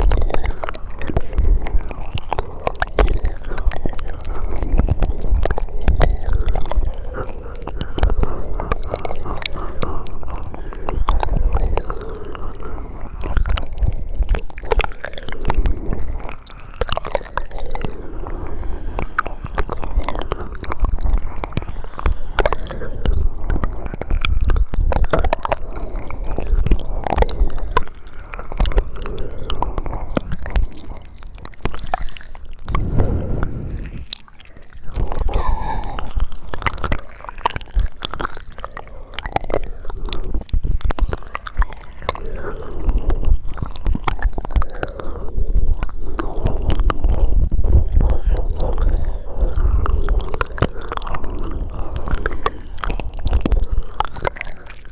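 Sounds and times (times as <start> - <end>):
mouth clicks and smacks: 0.0 - 54.9.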